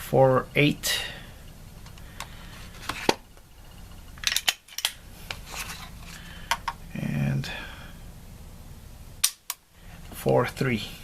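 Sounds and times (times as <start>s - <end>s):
pistol hammer and trigger clicks: 9.2s - 9.6s.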